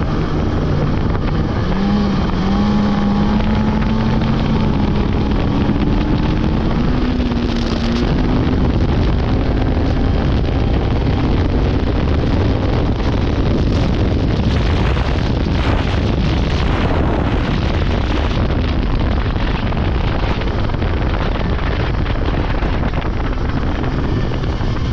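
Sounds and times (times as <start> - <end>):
snowmobile engine running: 0.0 - 24.9
wind noise on microphone: 0.0 - 24.9.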